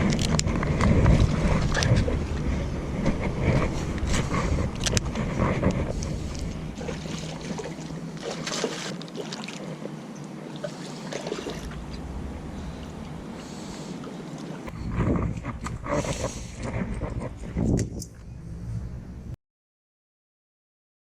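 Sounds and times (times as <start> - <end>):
wind rumbling on microphone: 0.0 - 8.7, 11.3 - 19.4.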